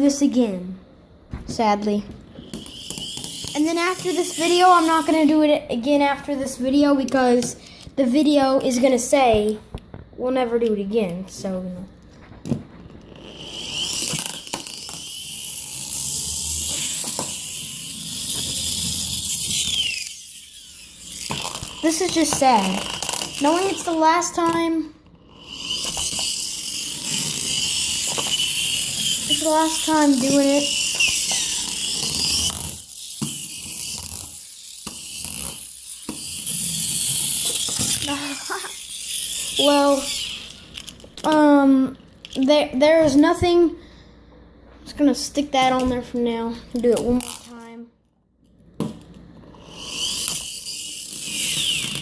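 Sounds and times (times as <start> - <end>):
toy rolling with high hiss: 2.4 - 7.8, 13.0 - 41.4, 49.5 - 52.0.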